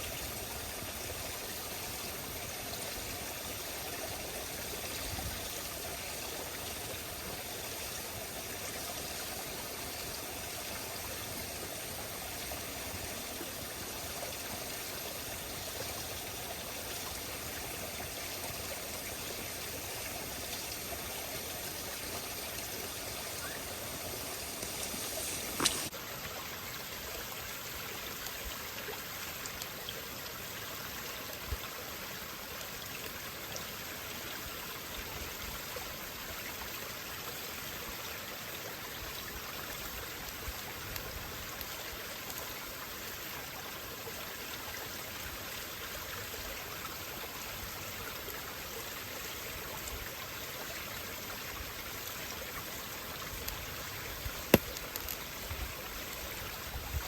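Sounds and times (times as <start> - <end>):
steady rushing hiss: 0.0 - 26.0
campfire crackling: 6.3 - 25.9, 53.2 - 56.3
sharp pop of fire: 54.5 - 55.1.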